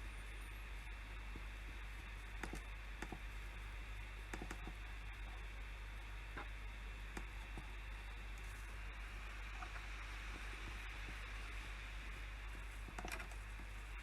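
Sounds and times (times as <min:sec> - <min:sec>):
low hum and hiss: 0:00.0 - 0:14.0
computer keys and mouse clicks: 0:02.4 - 0:03.2, 0:04.3 - 0:04.8, 0:12.9 - 0:13.4.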